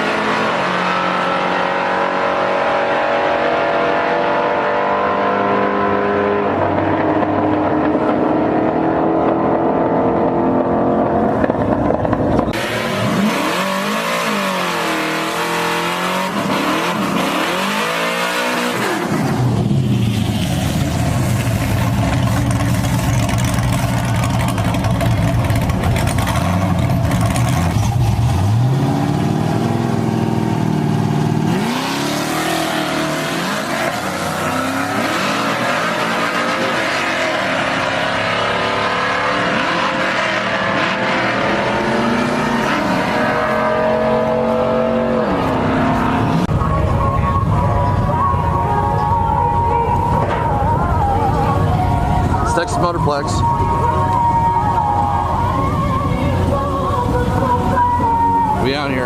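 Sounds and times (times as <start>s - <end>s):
truck engines revving: 0.0s - 59.0s.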